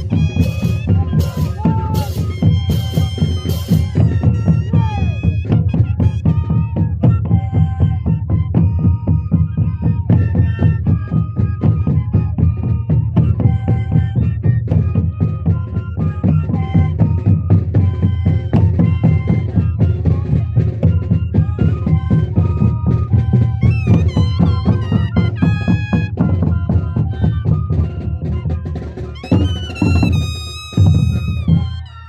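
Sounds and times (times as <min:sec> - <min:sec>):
steady dense drum beat: 0:00.0 - 0:06.0, 0:28.3 - 0:31.9
cane flutes playing: 0:00.0 - 0:32.0.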